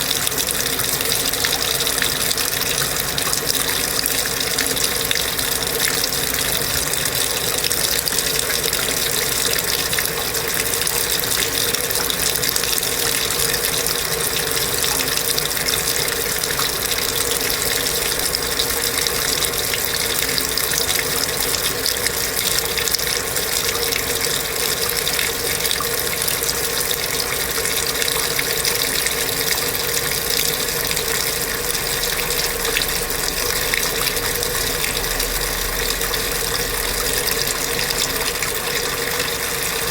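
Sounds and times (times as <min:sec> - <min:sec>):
washing machine running: 0:00.0 - 0:39.9
water rushing: 0:00.0 - 0:39.9
steady hum: 0:28.9 - 0:39.9.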